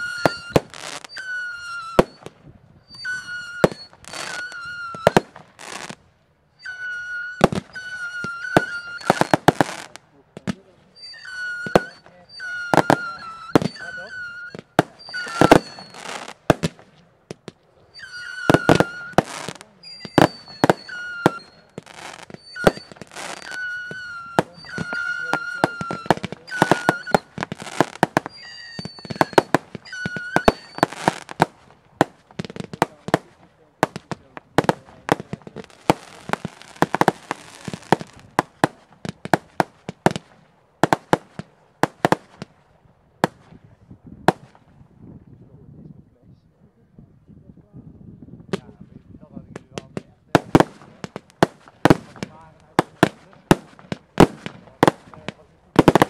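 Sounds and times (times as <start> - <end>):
firework whistles: 0.0 - 6.0, 6.6 - 17.0, 17.8 - 42.6, 44.3 - 44.8, 49.6 - 56.0
firework shells bursting: 7.3 - 42.6, 49.8 - 56.0.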